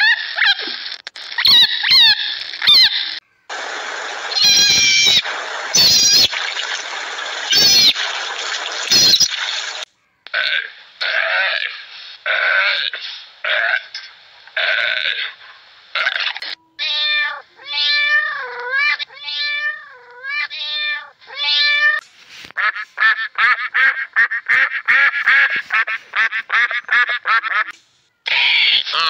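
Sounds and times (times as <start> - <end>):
ducks quacking: 3.5 - 9.9
cat meowing: 4.3 - 6.6, 7.5 - 8.0, 8.9 - 9.3, 16.7 - 22.0.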